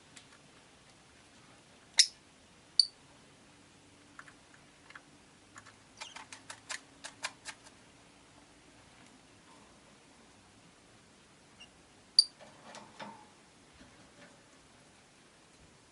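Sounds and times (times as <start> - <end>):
lovebirds chirping: 2.0 - 2.2.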